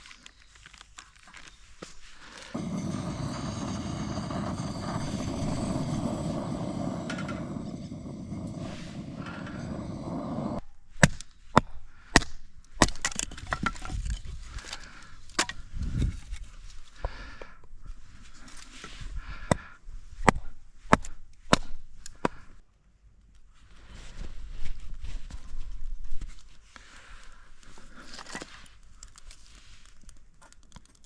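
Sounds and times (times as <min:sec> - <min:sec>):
dry wood cracking and snapping: 0:00.0 - 0:01.9, 0:12.8 - 0:15.5, 0:28.1 - 0:31.0
steady rushing noise: 0:02.6 - 0:10.6.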